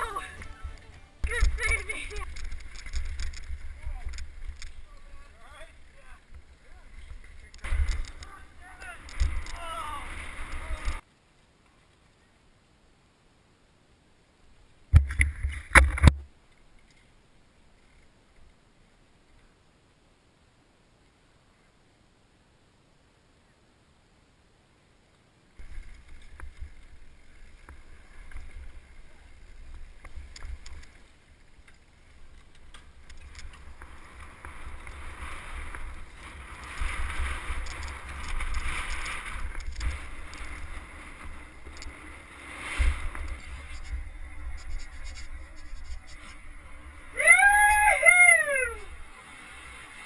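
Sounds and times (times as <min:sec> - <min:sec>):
mountain bike rattling: 0:00.0 - 0:11.0, 0:25.6 - 0:47.9.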